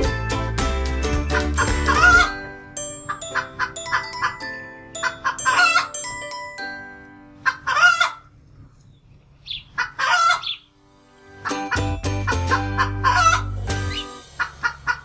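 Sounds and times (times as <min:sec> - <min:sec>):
glockenspiel-like tune: 0:00.0 - 0:07.6, 0:11.4 - 0:14.1
chickens calling: 0:01.0 - 0:06.2, 0:07.4 - 0:10.8, 0:11.4 - 0:15.0.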